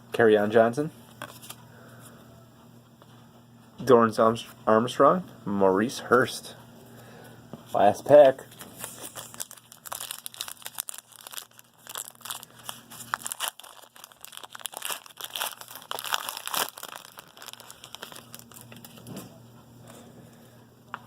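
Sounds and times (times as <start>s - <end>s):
foil wrapper tearing and crinkling: 8.5s - 19.1s.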